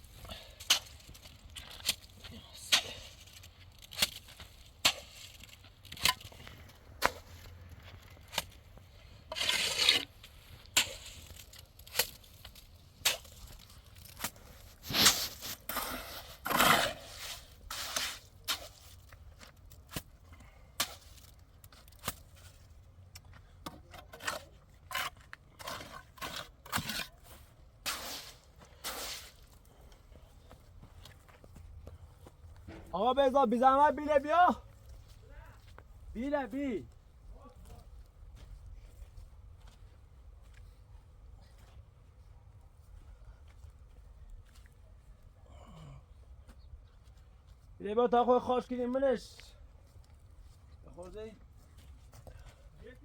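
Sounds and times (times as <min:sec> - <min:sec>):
scraping or rustling: 0:09.3 - 0:19.0.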